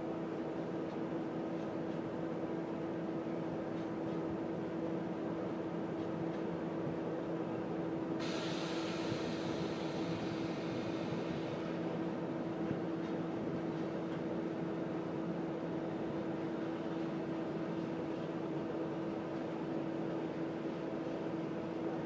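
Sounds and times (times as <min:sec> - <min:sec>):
freight train wheels humming: 0:00.0 - 0:22.0
high hiss: 0:08.2 - 0:11.9.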